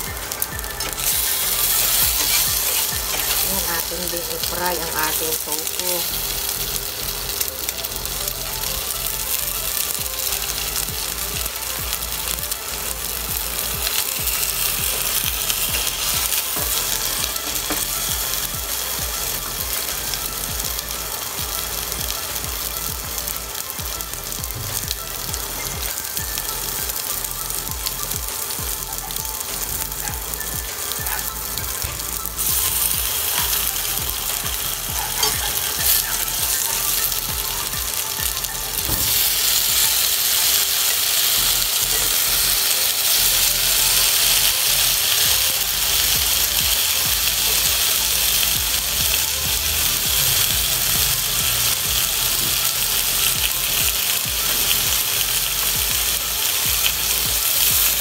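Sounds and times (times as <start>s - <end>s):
food sizzling in oil: 0.0s - 58.0s.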